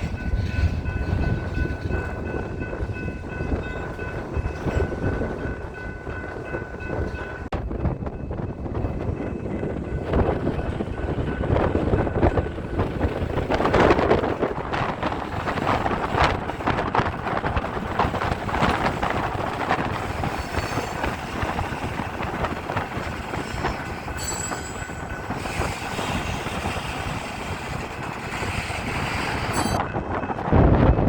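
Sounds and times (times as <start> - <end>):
train wheels clicking over rail joints: 8.7 - 30.5
high wheel squeal: 23.3 - 27.7.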